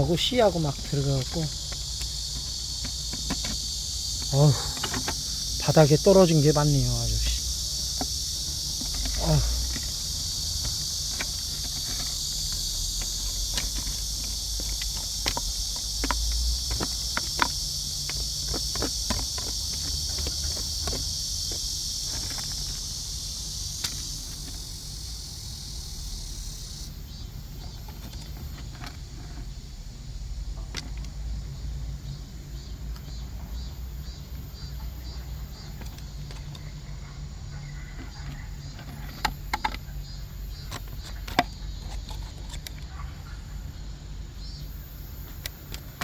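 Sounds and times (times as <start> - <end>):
insects trilling: 0.0 - 46.0.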